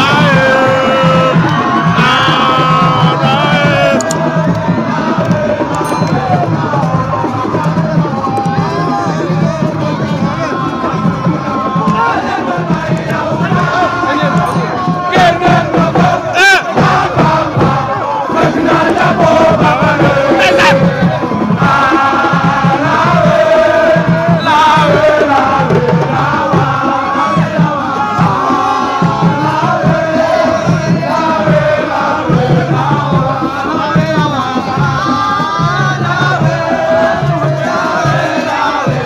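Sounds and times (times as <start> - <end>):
crowd singing and chanting: 0.0 - 39.0
steady drumming: 0.0 - 39.0.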